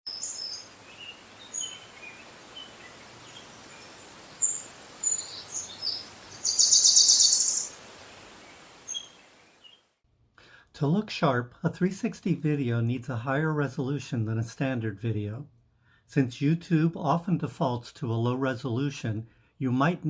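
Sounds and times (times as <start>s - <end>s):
rapid high bird trill: 0.1s - 7.8s
small birds chirping: 0.1s - 9.9s.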